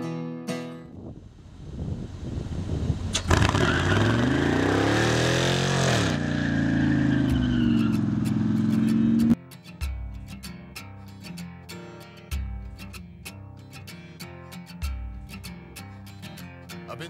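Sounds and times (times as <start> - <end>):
truck engine starting and idling: 1.2 - 9.4.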